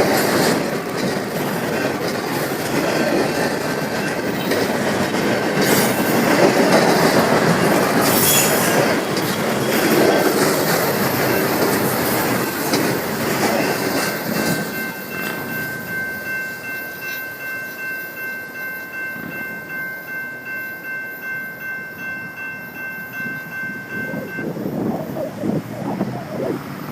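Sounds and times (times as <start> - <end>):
wheels squealing on rail: 0.0 - 20.2
wheels clattering over rail joints: 0.0 - 22.5
freight train cars rumbling: 0.0 - 26.9.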